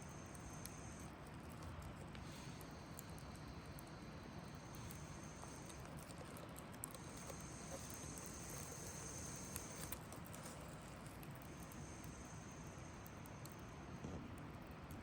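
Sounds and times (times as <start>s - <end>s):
insects trilling: 7.0s - 10.0s.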